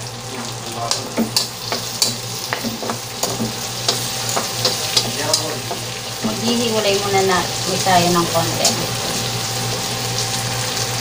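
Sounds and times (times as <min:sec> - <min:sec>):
food sizzling in hot oil: 0:00.0 - 0:11.0
metal tongs clinking against pan: 0:00.9 - 0:06.6.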